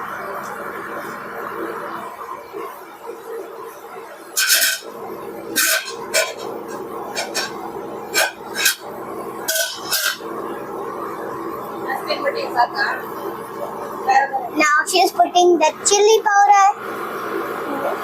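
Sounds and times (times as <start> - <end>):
steady background hum: 0.0 - 18.0
kitchen utensils clinking and scraping: 5.5 - 6.5, 7.1 - 8.8, 9.5 - 10.2.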